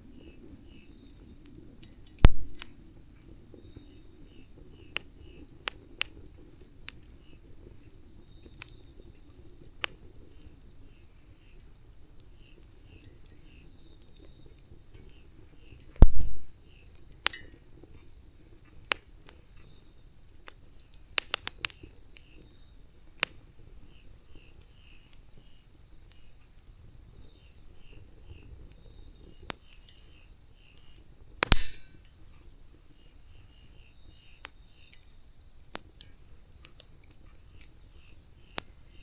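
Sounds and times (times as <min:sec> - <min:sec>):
campfire crackling and popping: 0:00.0 - 0:39.0
loud wood crack: 0:31.4 - 0:32.0.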